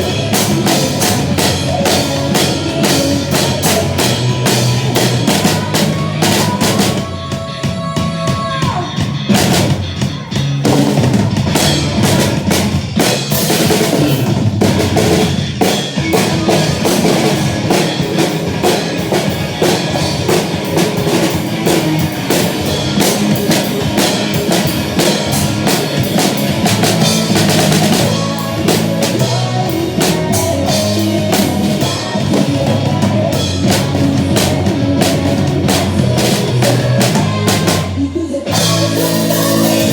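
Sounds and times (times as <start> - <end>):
drum kit rock beat: 0.0 - 39.9
recorded band music: 0.0 - 39.9.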